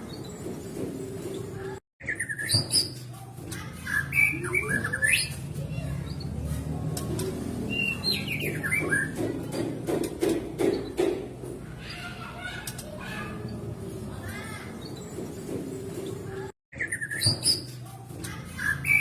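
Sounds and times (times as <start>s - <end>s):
bird whistling and chirping: 2.0s - 3.0s, 3.9s - 5.4s, 7.7s - 9.2s, 16.7s - 17.8s, 18.6s - 19.0s.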